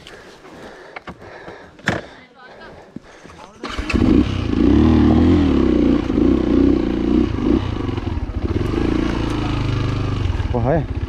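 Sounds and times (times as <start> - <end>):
dirt bike engine revving: 3.6 - 11.0.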